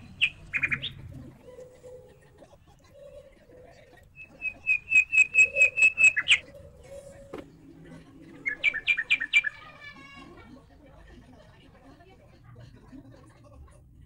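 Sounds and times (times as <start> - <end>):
small bird chirping: 0.0 - 1.1, 4.1 - 6.4, 8.4 - 9.6.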